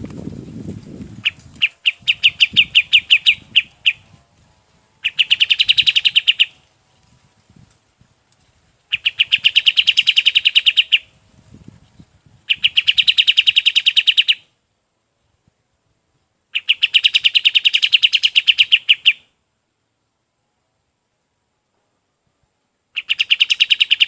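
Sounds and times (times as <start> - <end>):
songbird chipping notes: 1.2 - 4.2, 5.0 - 6.6, 8.9 - 11.1, 22.9 - 24.0.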